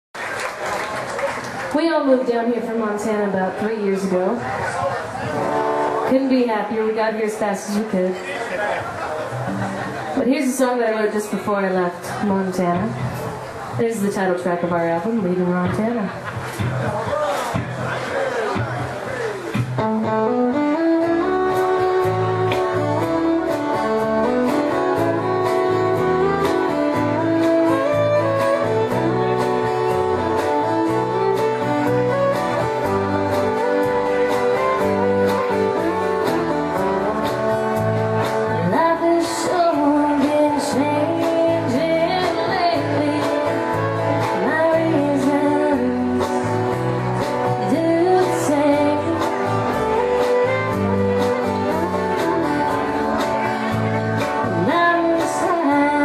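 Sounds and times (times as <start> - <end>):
country band playing: 0.4 - 56.0
person singing: 38.6 - 46.7.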